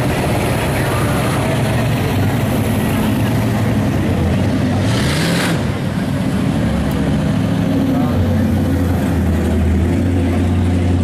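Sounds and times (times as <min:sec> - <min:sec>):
cars rumbling past: 0:00.0 - 0:11.0
engine revving with hiss: 0:04.8 - 0:05.8.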